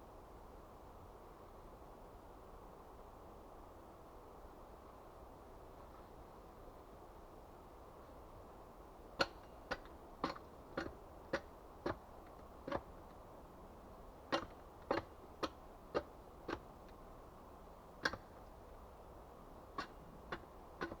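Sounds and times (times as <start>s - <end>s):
sharp short knocks: 14.3s - 16.7s.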